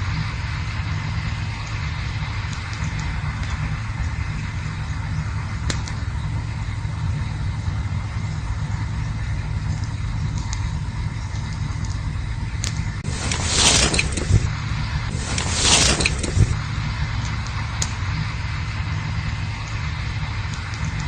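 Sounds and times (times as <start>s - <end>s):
campfire burning: 0.0s - 21.0s
wood crackles: 1.0s - 7.4s, 9.1s - 21.0s
hissing rush: 13.0s - 20.8s.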